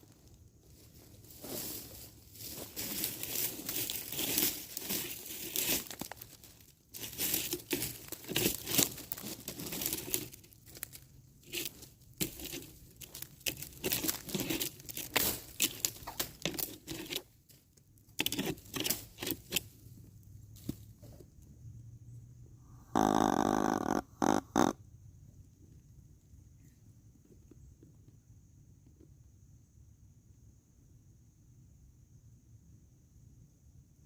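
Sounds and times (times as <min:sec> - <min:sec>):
footsteps crunching through dry leaves: 0:00.0 - 0:17.2.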